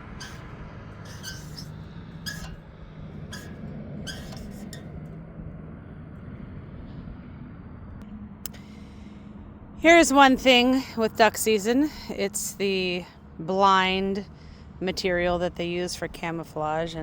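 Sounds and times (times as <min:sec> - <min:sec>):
short high squeaks: 0:00.0 - 0:05.1
small engine running: 0:00.0 - 0:09.8.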